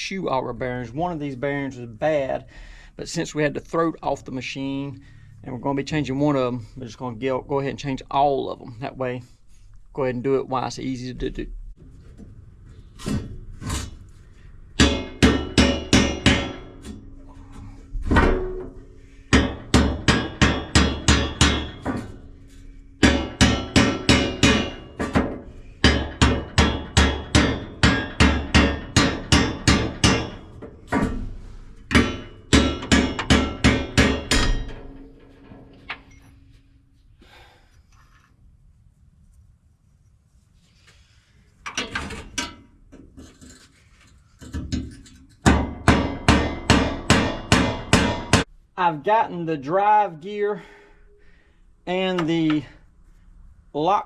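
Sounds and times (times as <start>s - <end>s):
hammer striking steel: 14.8s - 31.3s, 31.9s - 36.6s, 45.5s - 48.5s.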